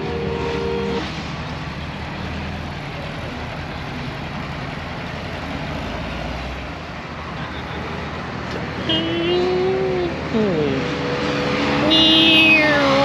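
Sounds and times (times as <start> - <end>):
car engine idling: 0.0 - 5.7.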